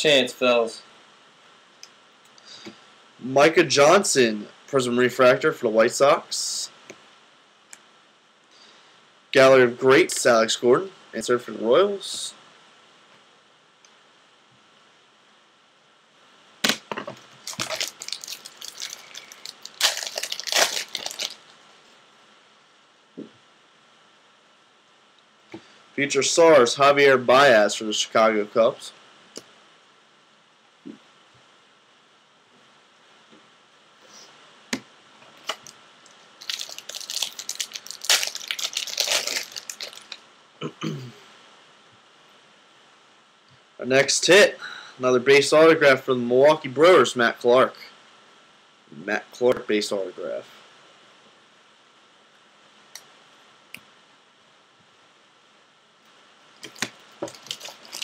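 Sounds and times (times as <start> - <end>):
foil wrapper tearing and crinkling: 17.4 - 21.5, 36.4 - 40.2, 56.6 - 58.0.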